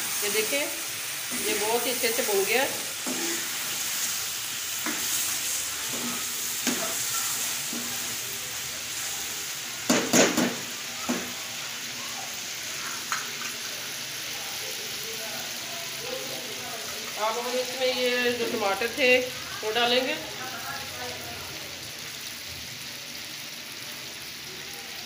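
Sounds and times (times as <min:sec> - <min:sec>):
chicken sizzling in hot oil: 0:00.0 - 0:25.0
metal spatula scraping a pan: 0:01.2 - 0:08.2.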